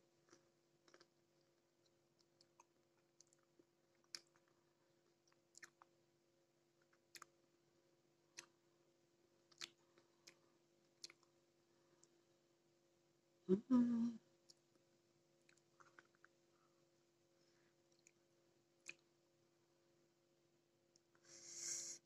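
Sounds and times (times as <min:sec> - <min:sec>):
faint steady hum: 0:00.0 - 0:22.0
chewing with wet crunches: 0:01.8 - 0:05.9.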